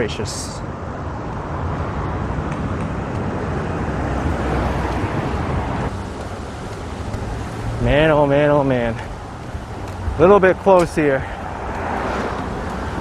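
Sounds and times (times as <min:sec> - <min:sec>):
cars passing on road: 0:00.0 - 0:13.0.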